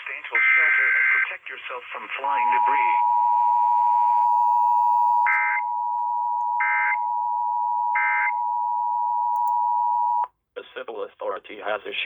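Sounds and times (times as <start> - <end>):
digital data tones: 2.3 - 5.7
two-tone alert signal: 2.4 - 7.2.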